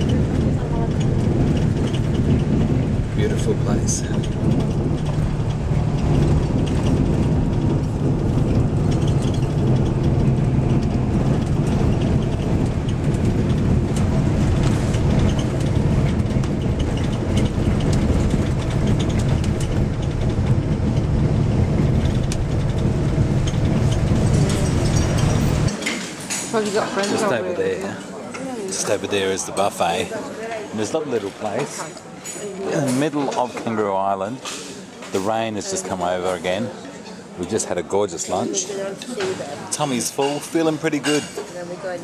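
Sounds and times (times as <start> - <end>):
engine and road rumble: 0.0 - 42.0.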